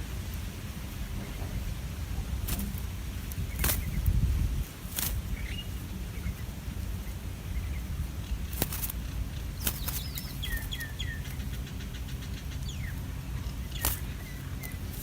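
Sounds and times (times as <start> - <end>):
steady low rumble: 0.0 - 15.0
bird chirping: 5.2 - 15.0.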